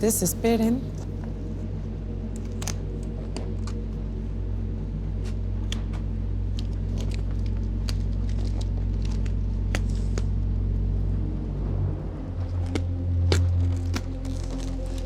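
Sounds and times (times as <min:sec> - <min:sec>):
low droning music: 0:00.0 - 0:15.0
packaging crinkling and clicking: 0:05.7 - 0:10.3, 0:12.7 - 0:15.0.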